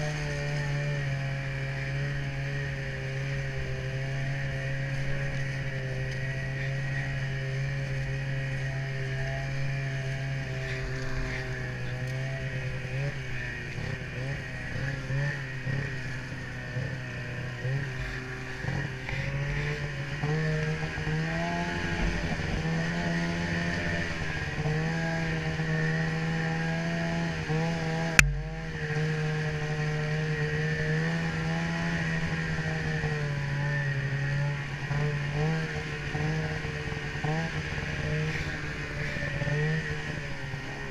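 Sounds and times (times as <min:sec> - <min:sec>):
snowmobile engine running: 0:00.0 - 0:40.9
sharp knock: 0:28.2 - 0:28.6.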